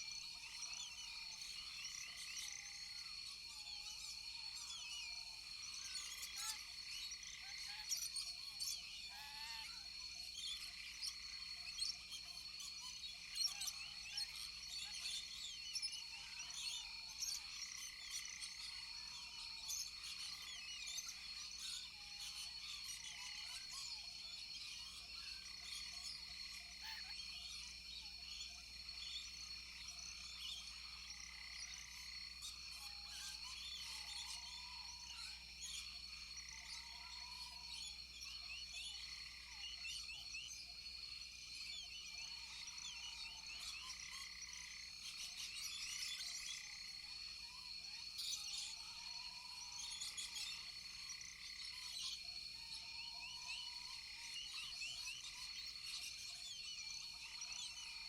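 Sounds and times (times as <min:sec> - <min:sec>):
frogs calling: 0:19.7 - 0:58.0.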